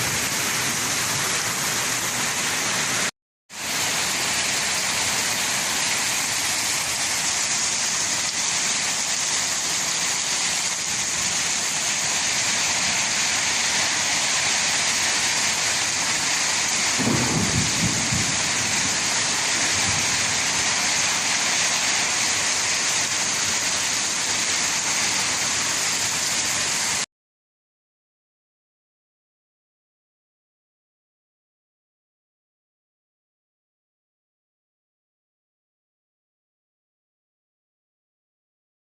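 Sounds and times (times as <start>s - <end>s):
heavy rain falling: 0.0s - 27.1s
low rumble of thunder: 16.9s - 20.6s.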